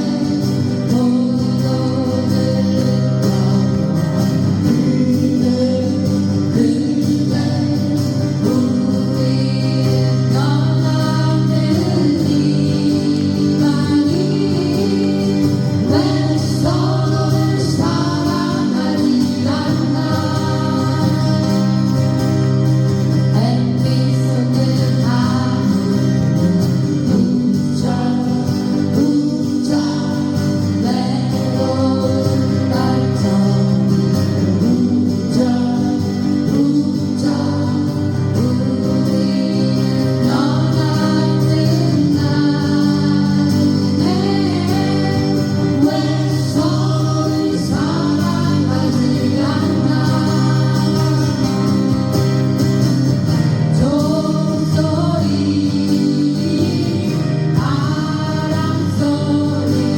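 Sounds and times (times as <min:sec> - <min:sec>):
person singing: 0:00.0 - 0:59.9
strummed acoustic guitar: 0:00.0 - 0:59.9.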